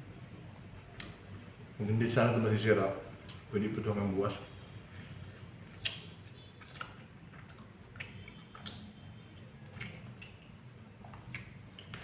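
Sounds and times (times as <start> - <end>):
chewing with wet mouth smacks: 5.2 - 12.0.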